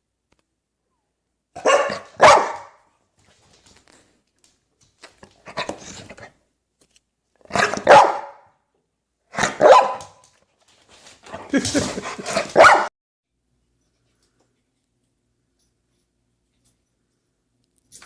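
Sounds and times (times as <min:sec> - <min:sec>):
dog barking: 0:01.6 - 0:02.8, 0:07.5 - 0:08.5, 0:09.3 - 0:10.2, 0:12.2 - 0:12.9.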